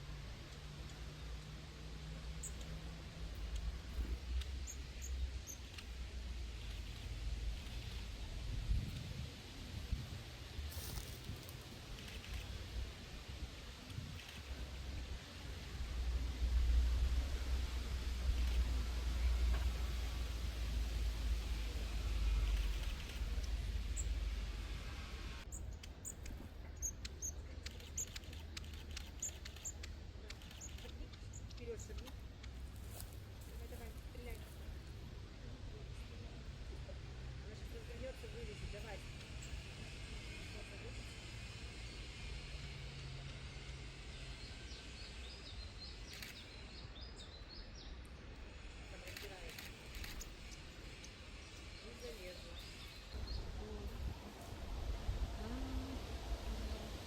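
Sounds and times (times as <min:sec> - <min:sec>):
small birds chirping: 0:00.3 - 0:15.8, 0:17.4 - 0:24.7, 0:25.4 - 0:42.2, 0:43.5 - 0:57.0
low rumble: 0:01.8 - 0:46.3.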